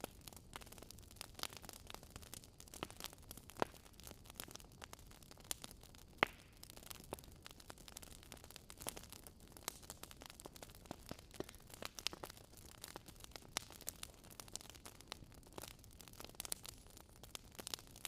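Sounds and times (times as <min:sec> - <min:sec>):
fire crackling and popping: 0:00.0 - 0:18.0.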